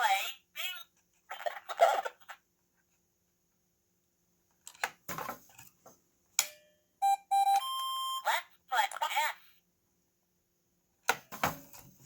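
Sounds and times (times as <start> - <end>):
short electronic beeps: 7.0 - 8.3.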